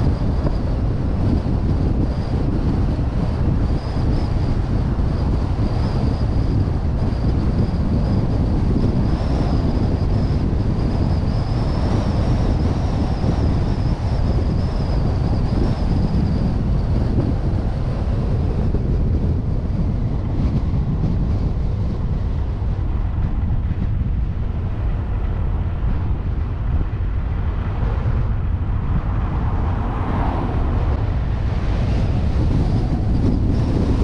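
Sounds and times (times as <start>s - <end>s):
road noise: 0.0s - 34.0s
wind buffeting microphone: 0.0s - 34.0s
vehicle engine: 20.0s - 34.0s.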